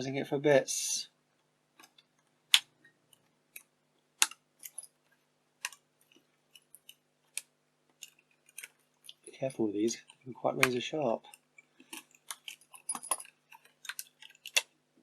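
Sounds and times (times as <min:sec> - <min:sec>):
sharp clicks and snaps: 0:01.8 - 0:04.8, 0:05.6 - 0:09.2, 0:10.0 - 0:14.8.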